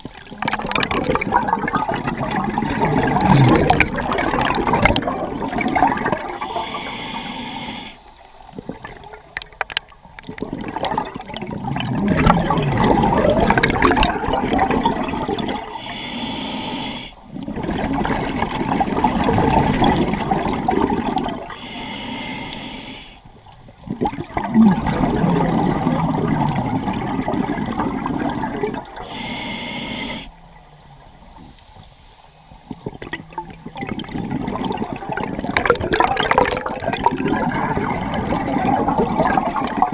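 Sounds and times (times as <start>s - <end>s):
exhaled bubbles bursting: 0.0s - 6.9s, 8.4s - 15.8s, 17.3s - 21.6s, 23.4s - 29.2s, 32.7s - 39.9s.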